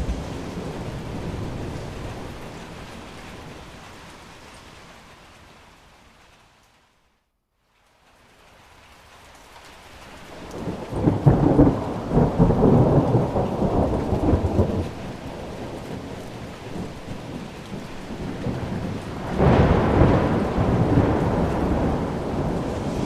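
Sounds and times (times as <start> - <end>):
thunder rumbling: 0.0 - 4.3, 10.3 - 23.0
steady rain: 0.0 - 23.0.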